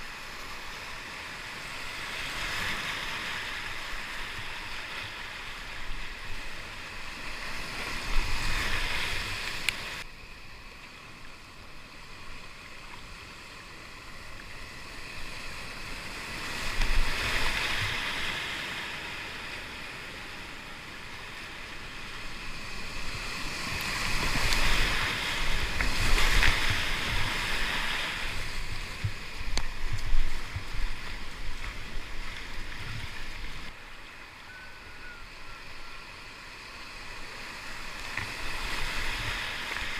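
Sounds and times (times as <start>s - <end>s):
rushing whitewater: 13.4s - 39.9s.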